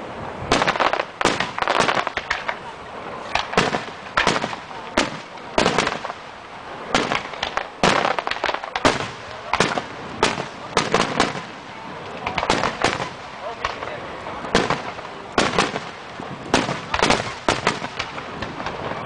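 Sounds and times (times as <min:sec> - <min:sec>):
firework crackling: 0:00.0 - 0:19.0
firework shells bursting: 0:00.5 - 0:02.6, 0:03.3 - 0:06.3, 0:06.9 - 0:13.9, 0:14.5 - 0:19.0.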